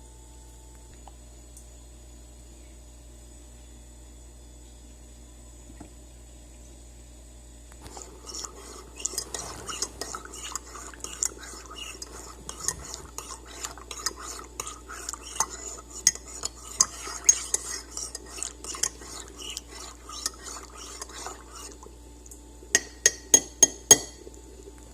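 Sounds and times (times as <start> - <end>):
spoon stirring in a teacup: 7.8 - 21.9, 22.8 - 24.3
spoon clinking against a cup: 8.3 - 21.7, 22.8 - 24.2.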